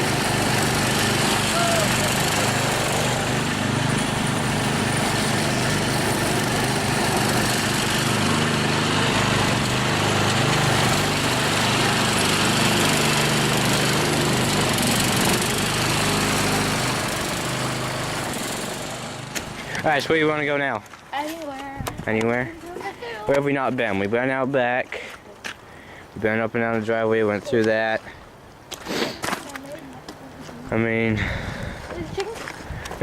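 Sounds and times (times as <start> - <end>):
lawn tractor engine running: 0.0 - 19.9.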